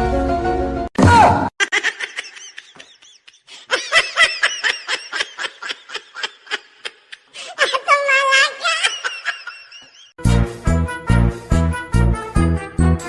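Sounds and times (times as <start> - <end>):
high-pitched laughter: 1.6 - 10.1.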